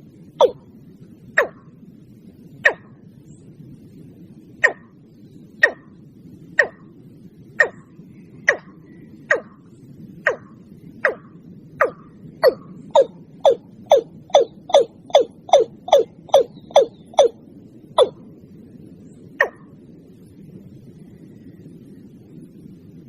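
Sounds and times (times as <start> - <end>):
steady low hiss: 0.0 - 23.0
bird calling sharp notes: 0.4 - 0.6, 1.4 - 1.6, 4.6 - 4.9, 5.6 - 5.9, 7.6 - 7.9, 8.5 - 9.6, 10.3 - 17.4.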